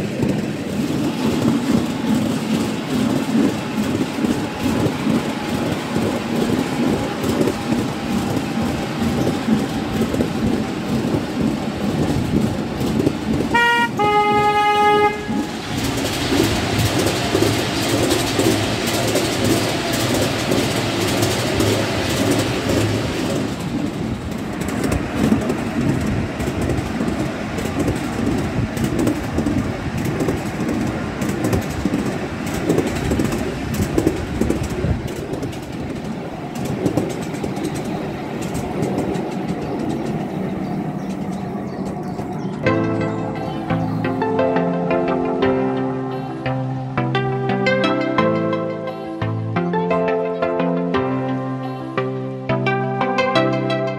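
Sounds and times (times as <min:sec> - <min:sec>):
miniature train rumbling on track: 0:00.0 - 0:48.2
locomotive toot: 0:13.5 - 0:15.8.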